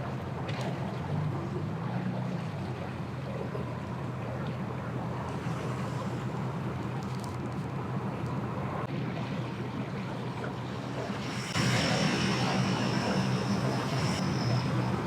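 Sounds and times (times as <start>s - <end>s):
boat motor humming: 0.0s - 15.0s
water noise: 0.0s - 15.0s
wind: 0.0s - 15.0s
high steady whine: 8.6s - 15.0s.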